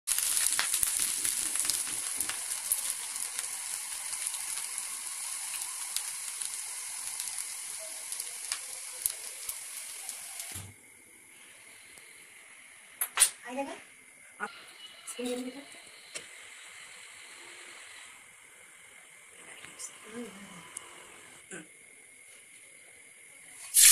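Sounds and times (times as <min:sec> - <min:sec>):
fried rice sizzling: 0:00.0 - 0:12.8, 0:23.4 - 0:23.9.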